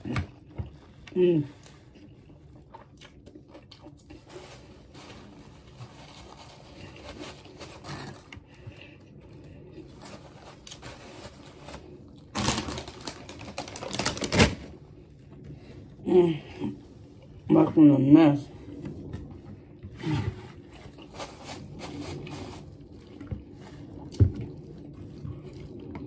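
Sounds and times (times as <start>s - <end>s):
wet chewing and mouth clicks: 0.0s - 4.3s
paper bag crackling: 4.1s - 8.7s, 9.4s - 15.0s, 20.0s - 23.0s.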